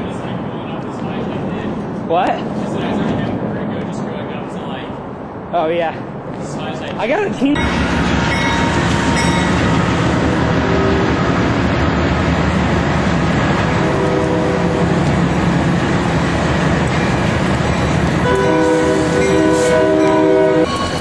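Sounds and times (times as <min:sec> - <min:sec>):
train wheels rumbling on rails: 0:00.0 - 0:21.0
train horn: 0:13.8 - 0:15.0, 0:18.2 - 0:21.0.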